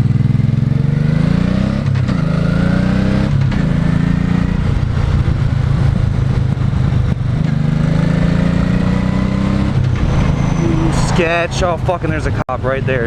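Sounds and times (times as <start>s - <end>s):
motorcycle engine accelerating: 0.0s - 11.9s
wind rushing on microphone: 4.4s - 7.9s.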